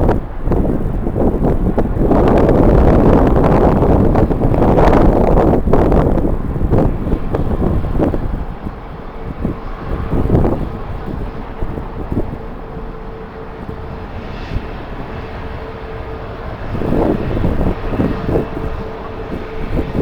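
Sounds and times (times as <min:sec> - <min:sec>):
jet engines humming: 0:00.0 - 0:20.0
wind buffeting microphone: 0:00.0 - 0:20.0.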